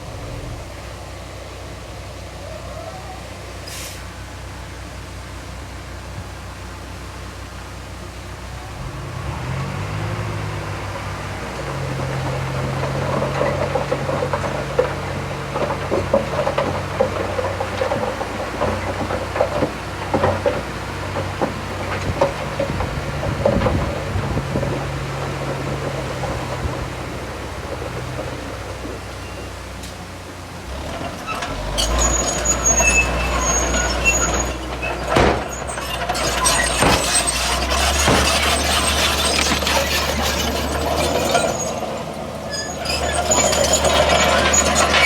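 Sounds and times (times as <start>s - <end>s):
bulldozer diesel engine: 0.0s - 45.0s
steel tracks clanking: 10.5s - 45.0s.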